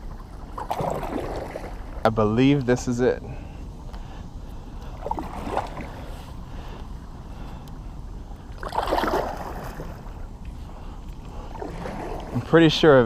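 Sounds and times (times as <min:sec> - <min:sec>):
paddle splashing into water: 0:00.6 - 0:02.0, 0:05.0 - 0:06.0, 0:08.6 - 0:10.0, 0:11.5 - 0:12.5.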